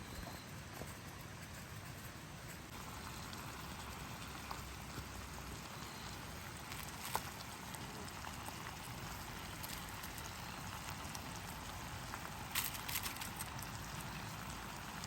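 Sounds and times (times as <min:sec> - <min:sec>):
wood fire hissing and crackling: 0:00.0 - 0:15.0
fire popping: 0:00.7 - 0:15.0.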